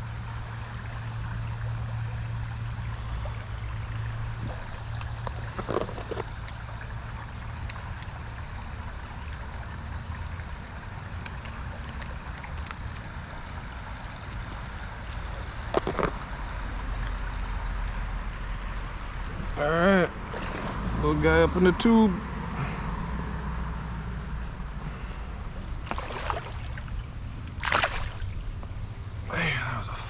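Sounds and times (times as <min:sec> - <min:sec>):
creek water running: 0:00.0 - 0:29.9.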